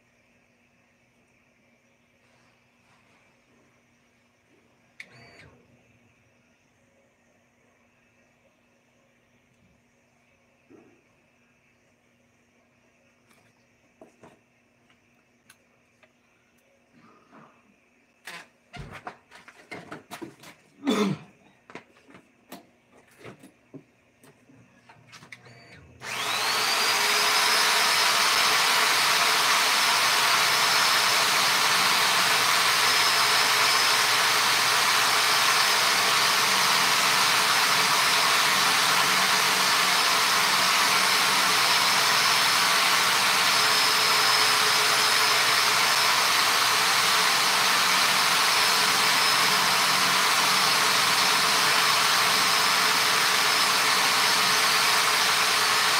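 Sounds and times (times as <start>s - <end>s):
power tool motor whining: 25.5s - 55.9s.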